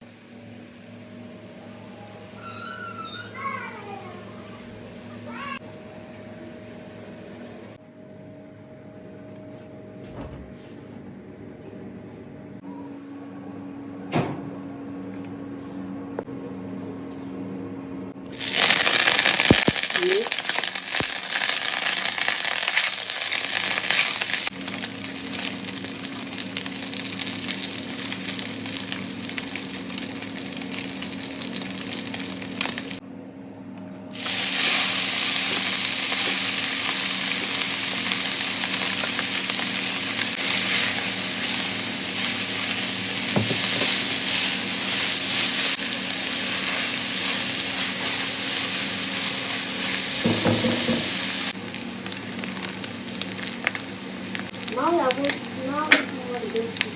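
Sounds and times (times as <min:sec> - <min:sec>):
steady low hum: 0:03.9 - 0:56.9
food sizzling in a frying pan: 0:18.3 - 0:33.0, 0:34.2 - 0:56.9.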